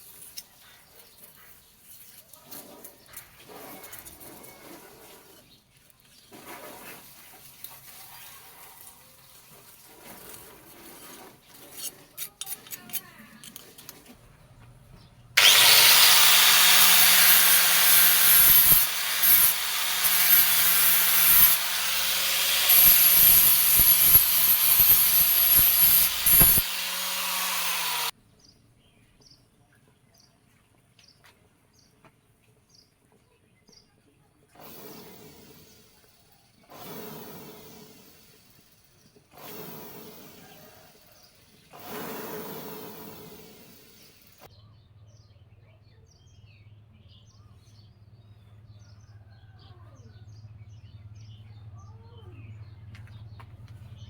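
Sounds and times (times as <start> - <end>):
electric grinder on steel: 15.4 - 28.1, 36.7 - 38.8, 39.4 - 44.5.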